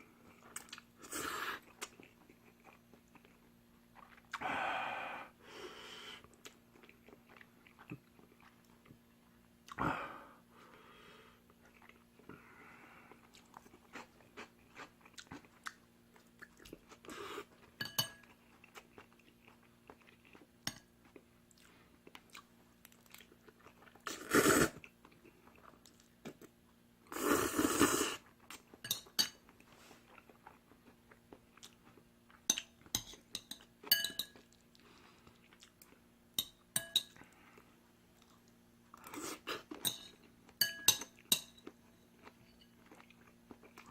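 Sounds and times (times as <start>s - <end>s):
chewing noodles: 13.1s - 17.7s.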